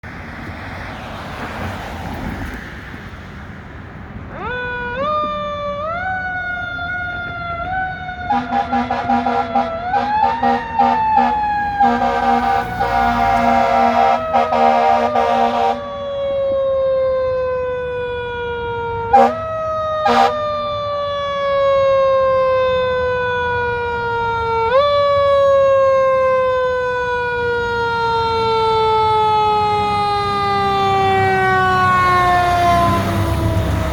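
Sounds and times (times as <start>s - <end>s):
fire engine siren wailing: 3.0s - 33.9s
air horns blaring: 8.2s - 16.3s, 19.1s - 20.6s.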